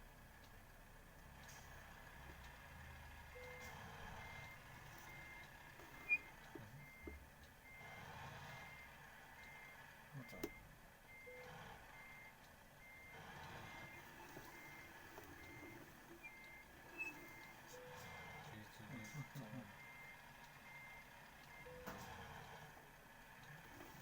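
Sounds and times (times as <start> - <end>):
reversing warning beeper: 3.3 - 22.0.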